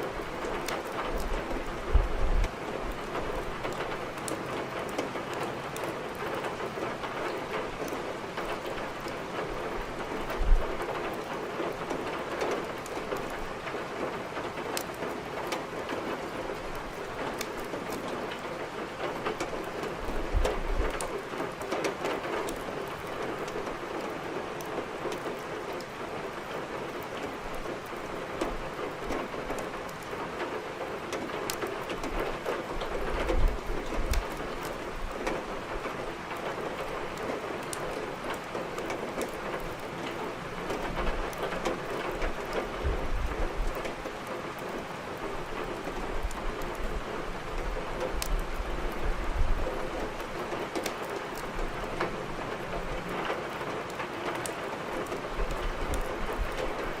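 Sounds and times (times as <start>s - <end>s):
rain pattering: 0.0s - 57.0s
firewood crackling: 27.0s - 40.2s, 43.5s - 49.0s, 50.1s - 57.0s.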